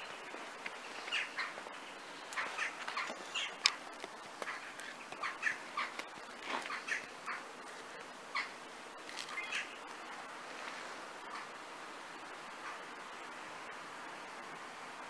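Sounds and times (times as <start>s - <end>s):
birds chirping: 0.0s - 10.3s
faint hiss: 0.0s - 15.0s.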